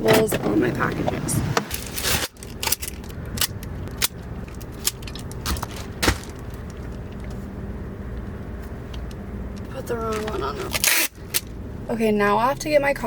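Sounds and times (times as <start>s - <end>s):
steady low hum: 0.0s - 13.0s
parcel handling clicks and rustles: 1.7s - 7.4s, 8.9s - 11.5s.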